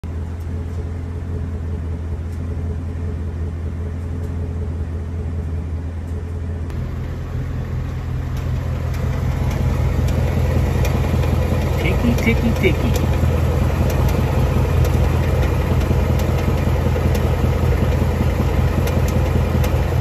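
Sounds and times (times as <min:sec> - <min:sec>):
car engine idling: 0:00.0 - 0:20.0
light engine ticks: 0:05.4 - 0:20.0.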